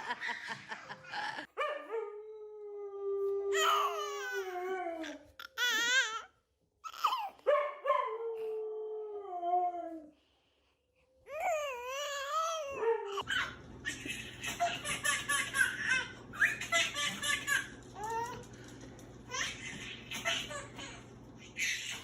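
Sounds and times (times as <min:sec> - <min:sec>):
dog whining and howling: 0:01.6 - 0:06.2, 0:11.3 - 0:13.5.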